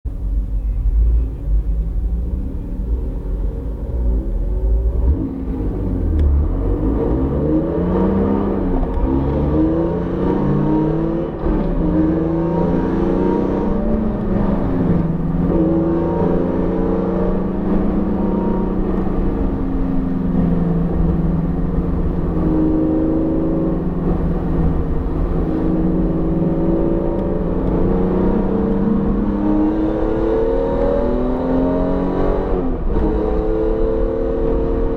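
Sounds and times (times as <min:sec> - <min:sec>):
car engine revving: 0:00.6 - 0:34.9.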